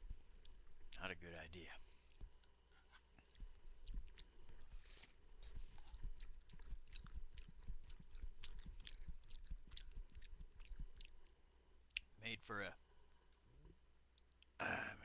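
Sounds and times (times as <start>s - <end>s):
person chewing beans: 0.0s - 1.1s, 1.9s - 12.2s.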